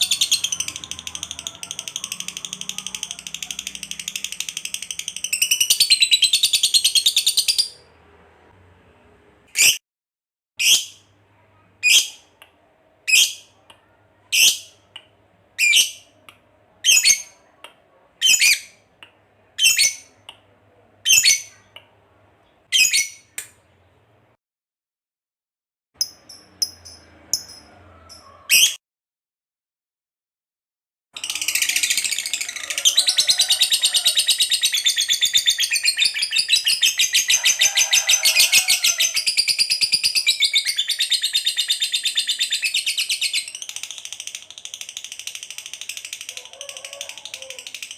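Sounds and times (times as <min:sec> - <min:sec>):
fast chattering trill: 0:00.0 - 0:06.4.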